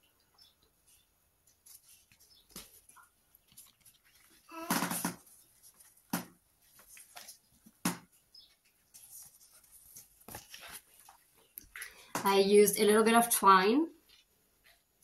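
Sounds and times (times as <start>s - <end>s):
paper notebook rustling: 0.8s - 11.6s.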